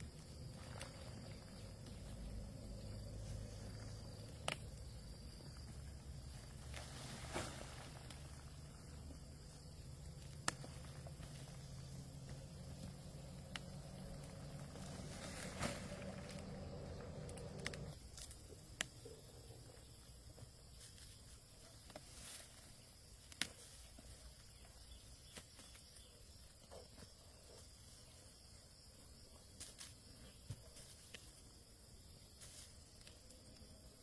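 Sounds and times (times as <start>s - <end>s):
faint high hiss: 6.6s - 8.8s.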